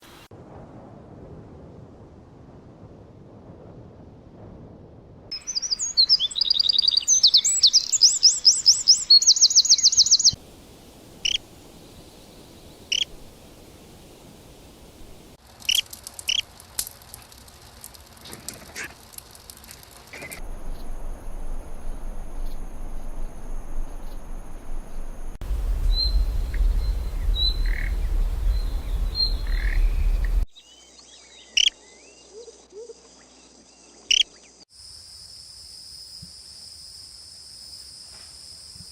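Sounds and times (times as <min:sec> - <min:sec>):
birds singing and calling: 0:05.4 - 0:10.4, 0:25.5 - 0:32.1
rapid trilling birdsong: 0:05.4 - 0:10.4, 0:25.4 - 0:31.7
low rumble: 0:20.4 - 0:30.5
steady high whine: 0:20.4 - 0:30.5.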